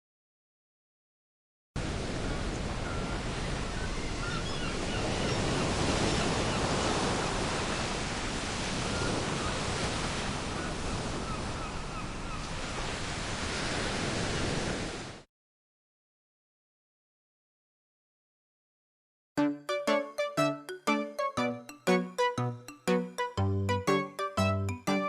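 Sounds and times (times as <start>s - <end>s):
sea waves washing onto shore: 1.8s - 15.2s
seagulls calling: 2.8s - 6.8s, 10.6s - 12.7s.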